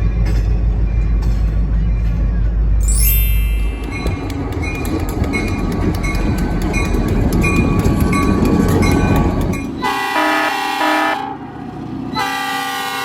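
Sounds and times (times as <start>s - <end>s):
locomotive bell ringing: 0.0s - 9.9s
rail clicks: 0.0s - 10.2s
freight train rumbling: 0.0s - 13.0s
locomotive horn chord: 9.8s - 11.4s, 12.2s - 13.0s.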